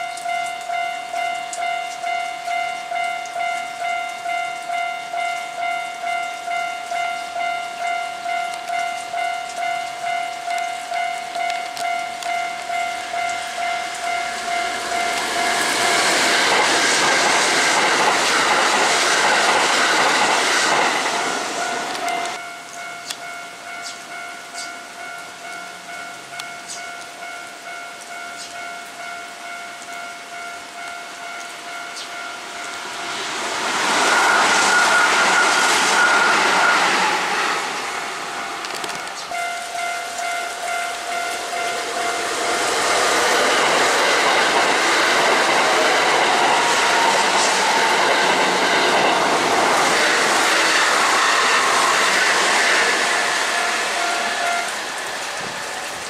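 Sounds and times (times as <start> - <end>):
steady ringing tone: 0.0 - 17.1, 21.6 - 49.2
electric train passing: 0.0 - 56.0.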